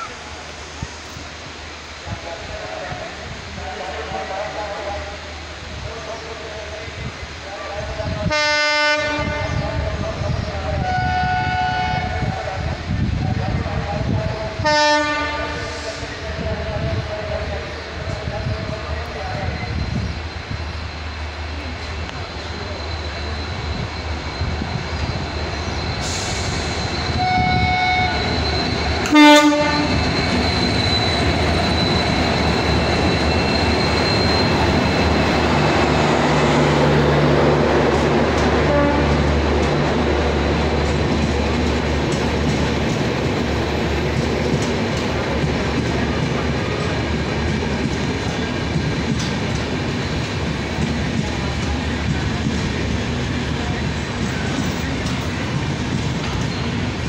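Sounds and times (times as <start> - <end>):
train rumbling past: 0.0 - 57.0
train horn: 8.2 - 9.6, 10.8 - 12.4, 14.6 - 15.9, 27.2 - 28.3, 29.0 - 30.0, 38.6 - 39.3.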